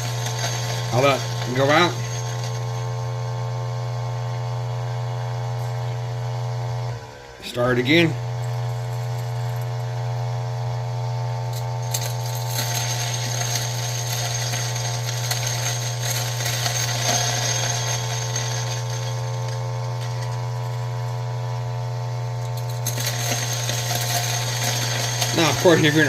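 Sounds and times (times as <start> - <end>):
coffee beans crackling in burrs: 0.0 - 2.9, 11.9 - 21.3, 22.4 - 26.0
coffee grinder motor running: 0.0 - 26.0.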